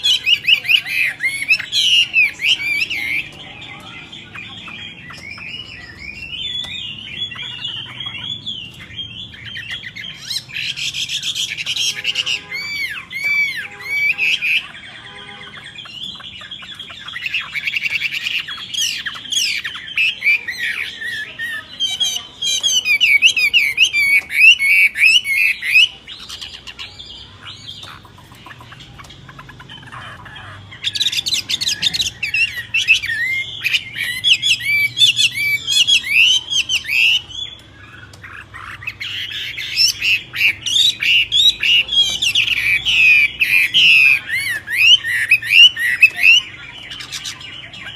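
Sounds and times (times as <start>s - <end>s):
harsh bird squawks: 0.0s - 47.9s
songbirds chirping and whistling: 0.0s - 47.9s.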